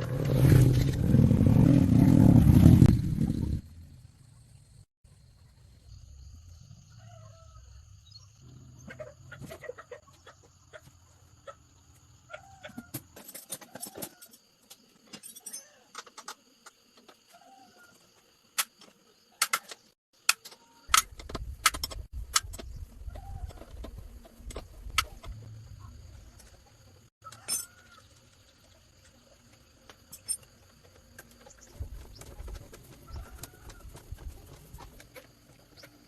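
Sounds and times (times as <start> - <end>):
chickens clucking: 8.7 - 11.7
sharp clicks and knocks: 18.6 - 22.8.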